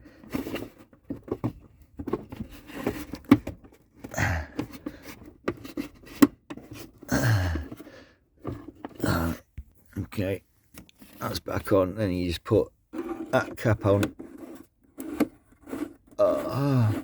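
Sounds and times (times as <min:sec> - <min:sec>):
low grunts or breaths: 0:04.1 - 0:05.0, 0:07.1 - 0:08.2, 0:09.0 - 0:09.5, 0:16.2 - 0:17.0.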